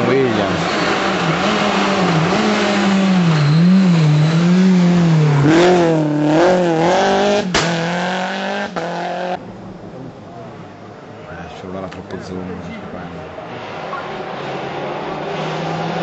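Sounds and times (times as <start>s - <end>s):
rally car engine revving: 0.0s - 9.4s, 12.1s - 16.0s
sharp crack: 7.4s - 7.9s.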